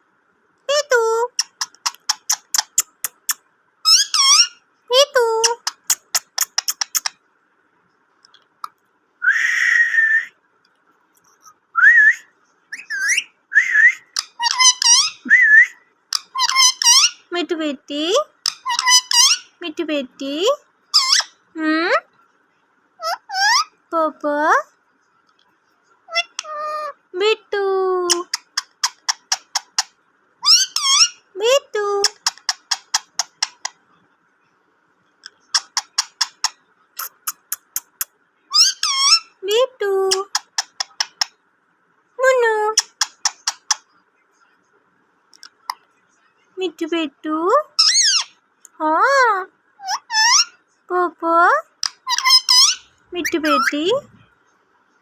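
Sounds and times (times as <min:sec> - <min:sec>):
parrot whistling: 0:11.8 - 0:15.8.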